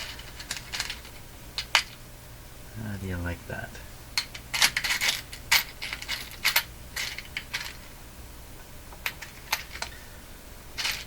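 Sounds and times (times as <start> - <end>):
metal washers clinking and rattling: 0.0 - 2.0, 4.2 - 7.9, 9.0 - 10.0, 10.8 - 11.0.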